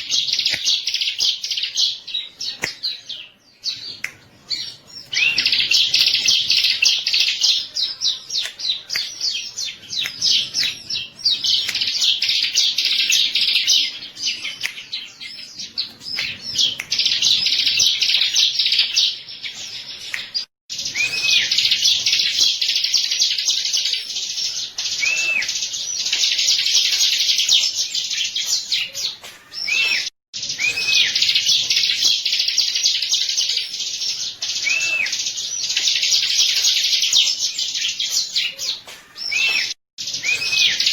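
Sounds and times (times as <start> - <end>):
bird chirping trills: 0.0 - 40.9
bird whistled notes: 20.9 - 21.8, 29.6 - 31.4, 39.2 - 40.9.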